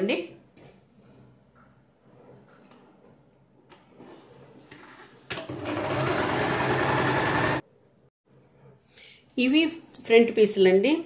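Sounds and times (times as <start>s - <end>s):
sewing machine stitching: 5.4s - 7.6s.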